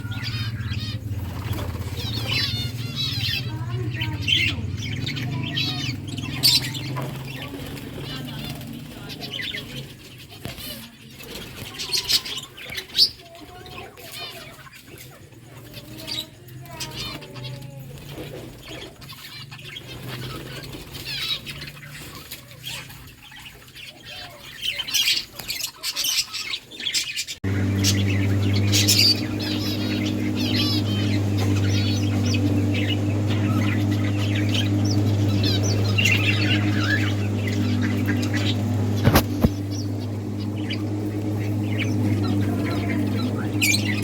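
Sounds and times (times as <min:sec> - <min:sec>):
budgerigars chirping: 0:00.0 - 0:15.0, 0:18.4 - 0:44.0
steady low hum: 0:27.4 - 0:44.0
clicks: 0:30.0 - 0:44.0.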